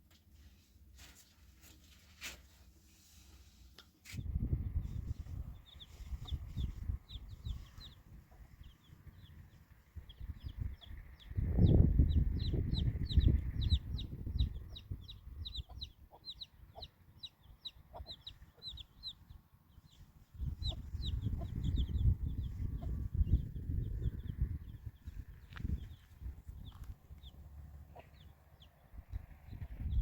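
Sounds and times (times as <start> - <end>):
birds chirping rapidly: 4.6 - 30.0
low rumbling noise: 20.3 - 30.0.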